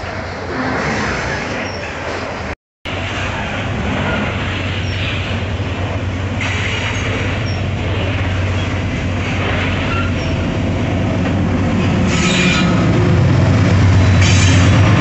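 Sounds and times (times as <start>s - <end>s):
diesel locomotive drone: 0.0s - 15.0s
freight wagons rumbling on rails: 0.0s - 15.0s
high wheel squeaks: 6.6s - 8.8s, 9.6s - 10.5s.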